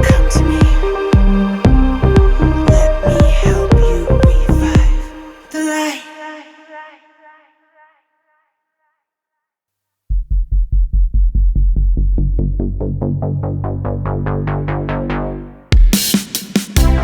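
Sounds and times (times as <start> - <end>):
electronic music drum-machine pulse: 0.0 - 5.1.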